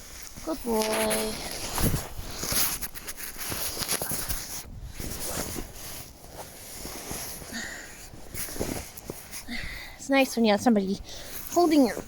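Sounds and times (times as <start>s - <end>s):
rain sheet rustling: 0.0s - 4.6s.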